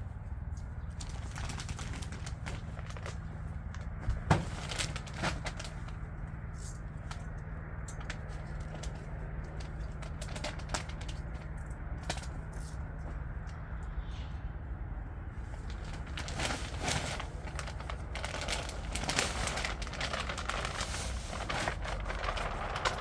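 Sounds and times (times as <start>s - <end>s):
crackling and clicking: 15.6s - 23.0s.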